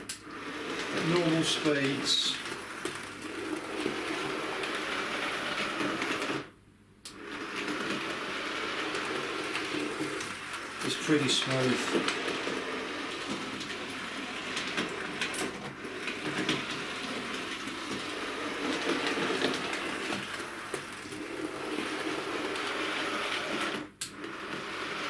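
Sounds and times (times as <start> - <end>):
model train motor whirr: 0.0 - 6.5, 7.1 - 25.0.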